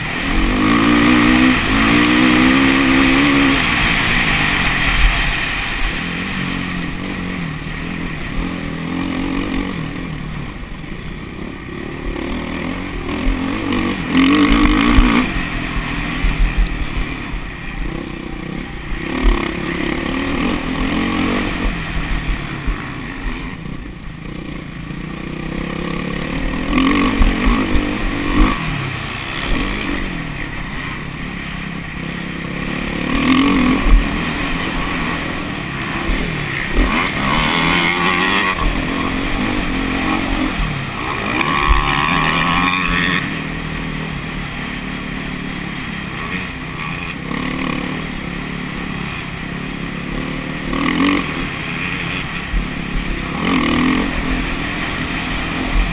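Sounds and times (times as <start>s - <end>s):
off-road motorcycle engines revving: 0.0s - 55.9s.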